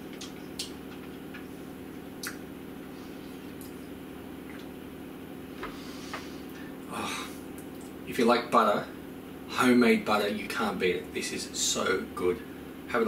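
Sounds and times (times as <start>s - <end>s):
steady low hum: 0.0s - 13.0s
mouth clicks from chewing: 2.2s - 2.4s.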